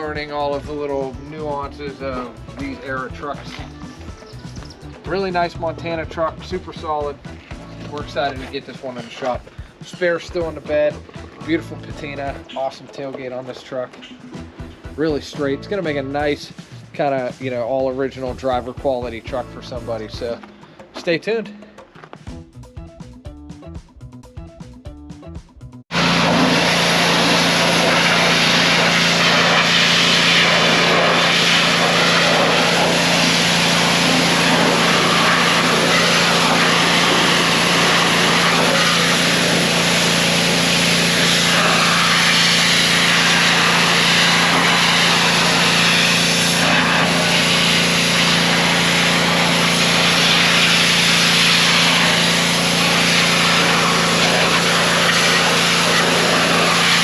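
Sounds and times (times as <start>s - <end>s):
motor running: 0.0s - 9.8s, 25.9s - 57.0s
loud steady hiss: 26.0s - 57.0s.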